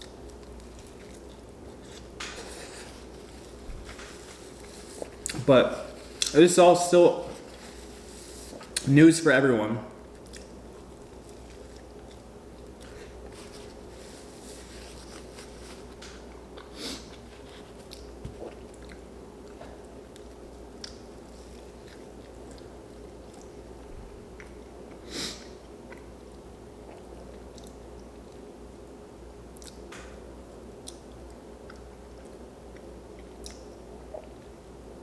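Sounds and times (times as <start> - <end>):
faint steady hum: 0.0 - 35.0
person chewing and biting: 10.1 - 23.6.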